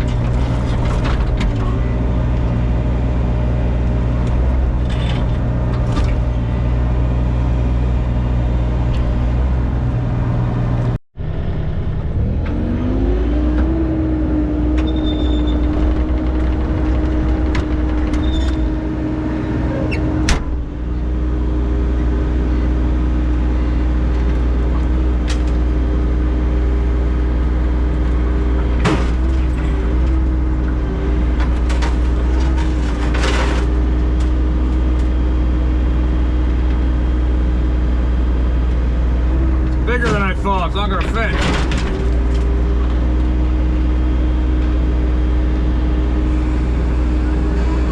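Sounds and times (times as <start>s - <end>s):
heavy equipment engine running: 0.0s - 47.9s
sharp knocks and scrapes: 31.4s - 33.8s.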